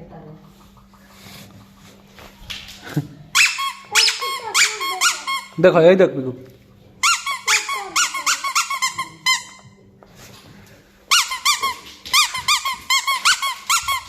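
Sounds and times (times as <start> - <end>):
squeaky toy squeaking: 3.3 - 5.6, 7.0 - 9.8, 11.1 - 14.0.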